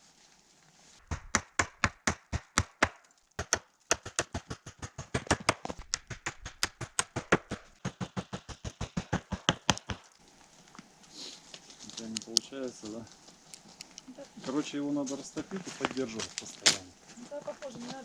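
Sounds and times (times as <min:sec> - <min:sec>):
fast sharp knocks: 0:01.0 - 0:10.2.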